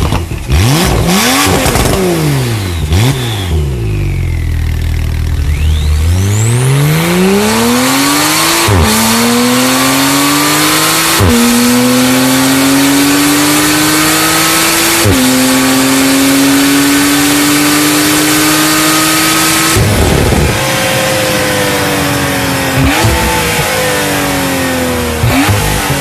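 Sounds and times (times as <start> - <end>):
sports car engine accelerating hard: 0.0 - 26.0
gear upshifts: 13.0 - 26.0.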